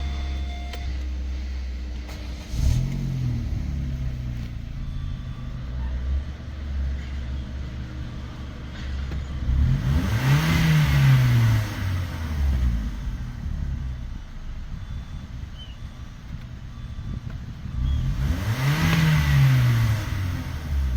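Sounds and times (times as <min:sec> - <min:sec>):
car engine idling and revving: 0:00.0 - 0:20.9.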